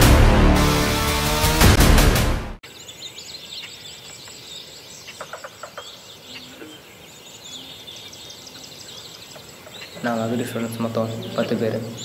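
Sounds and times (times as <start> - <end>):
small birds chirping: 2.6 - 12.0.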